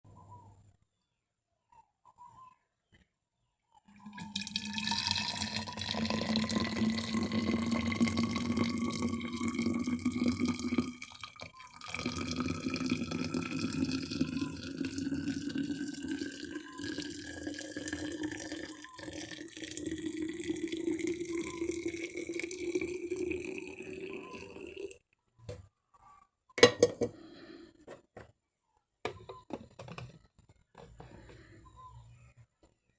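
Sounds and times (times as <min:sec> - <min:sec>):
water pouring into container: 0:03.9 - 0:25.0.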